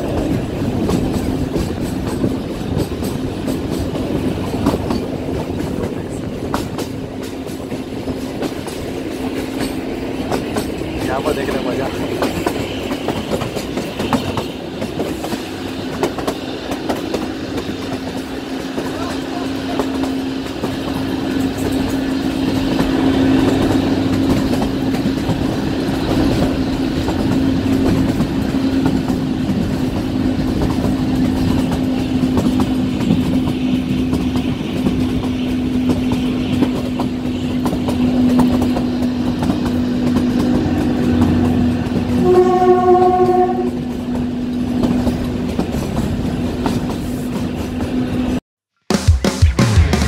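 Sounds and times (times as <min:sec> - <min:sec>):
train wheels clattering over rail joints: 0:00.0 - 0:48.4
train horn: 0:40.5 - 0:44.4.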